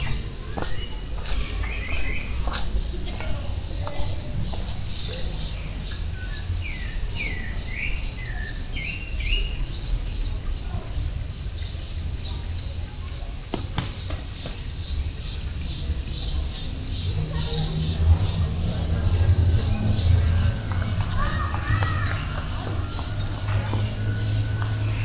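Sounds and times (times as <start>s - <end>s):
steady low rumble: 0.0s - 12.2s, 14.9s - 25.0s
birds chirping: 0.0s - 25.0s
lower swooping bird calls: 16.4s - 25.0s.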